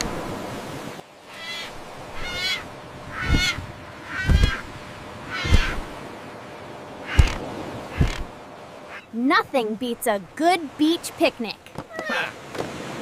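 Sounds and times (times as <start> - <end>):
seagull cries: 1.3 - 4.7, 5.3 - 5.8, 11.9 - 12.4.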